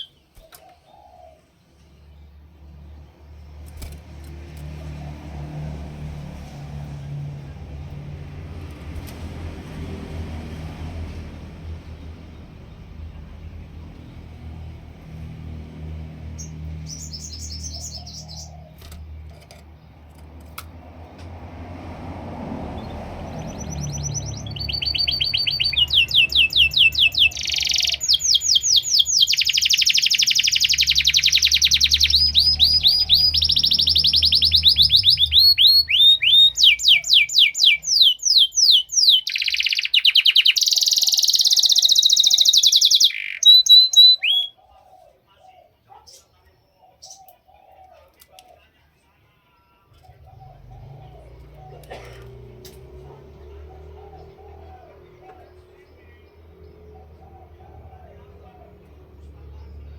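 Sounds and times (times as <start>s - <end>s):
canary singing trills: 0.0s - 1.4s, 11.6s - 20.2s, 22.7s - 48.7s
faint bird chirps: 22.8s - 52.0s.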